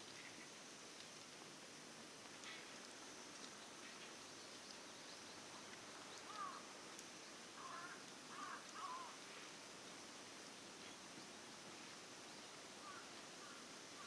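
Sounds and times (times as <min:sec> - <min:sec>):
faint hiss: 0:00.0 - 0:14.0.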